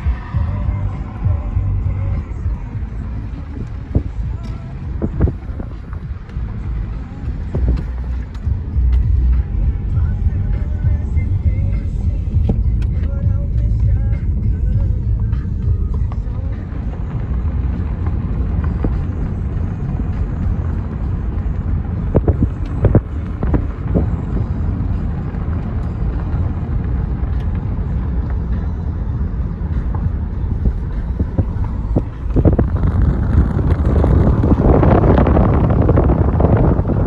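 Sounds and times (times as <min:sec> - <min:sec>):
wind on microphone: 0:00.0 - 0:12.8, 0:16.8 - 0:37.0
car tyres and engine rumble: 0:00.0 - 0:37.0.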